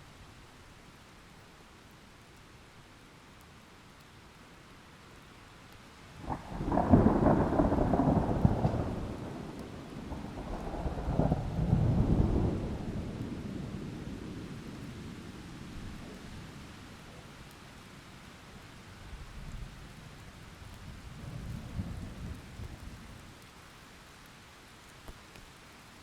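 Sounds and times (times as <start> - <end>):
light rain: 0.0 - 26.0
thunder rumbling: 6.2 - 15.1.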